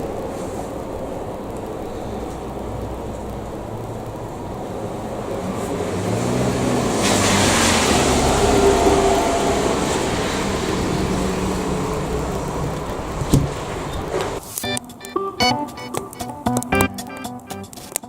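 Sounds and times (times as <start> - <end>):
motor vehicle running: 0.0 - 14.7
guitar music: 14.6 - 18.0.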